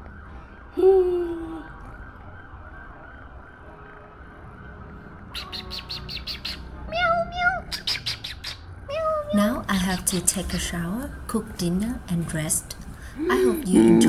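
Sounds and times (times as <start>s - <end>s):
cat chirping: 5.4s - 10.5s
cat meowing: 6.8s - 7.7s, 8.9s - 9.4s.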